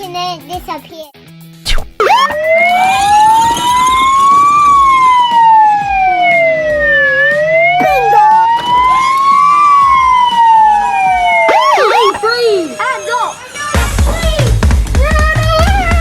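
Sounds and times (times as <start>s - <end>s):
quick sweeping siren tones: 1.7s - 13.7s
police siren wailing: 2.0s - 13.8s.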